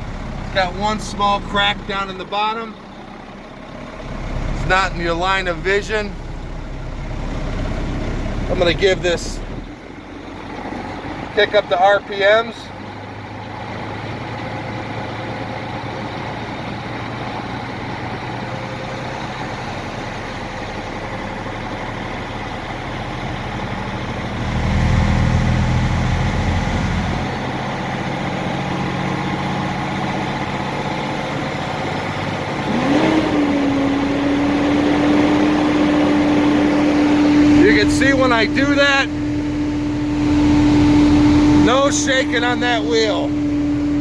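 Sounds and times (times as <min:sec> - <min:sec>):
diesel truck engine fast idle: 0:00.0 - 0:44.0
steady whine: 0:36.9 - 0:44.0.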